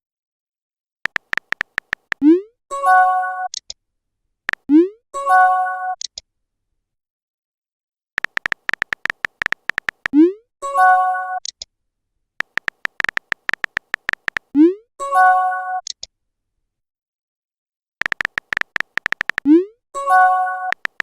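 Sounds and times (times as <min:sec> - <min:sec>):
keyboard tapping clicks: 0:01.1 - 0:02.3, 0:08.2 - 0:10.2, 0:12.4 - 0:14.5, 0:18.0 - 0:19.6, 0:20.7 - 0:21.0.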